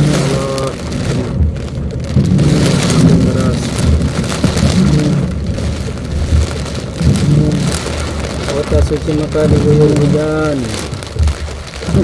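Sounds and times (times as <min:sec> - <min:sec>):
heavy rain on car roof: 0:00.0 - 0:12.0
road and engine rumble: 0:00.0 - 0:12.0.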